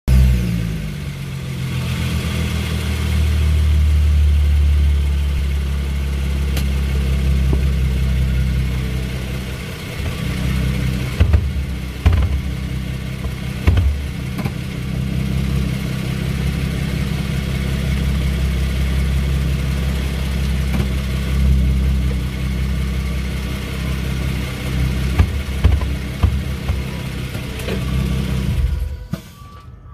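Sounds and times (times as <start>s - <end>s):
car engine running: 0.1s - 29.2s
hard clunks: 10.0s - 14.9s, 20.6s - 21.1s, 24.6s - 27.9s.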